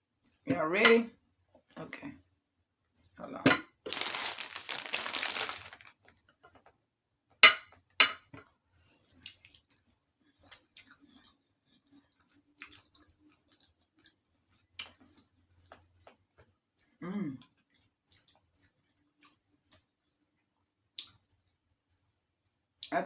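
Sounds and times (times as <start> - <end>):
crinkling: 3.8 - 6.2
chewing and mouth noises: 8.8 - 20.1.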